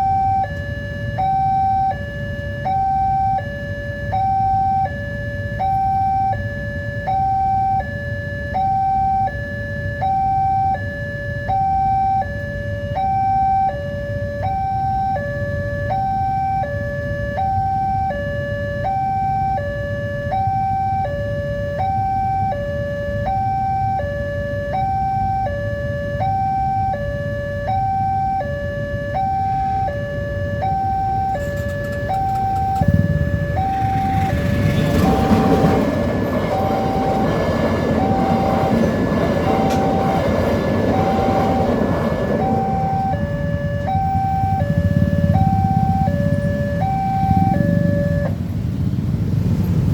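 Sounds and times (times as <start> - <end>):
two-tone crossing alarm: 0.0 - 48.5
train rumbling: 31.3 - 49.9.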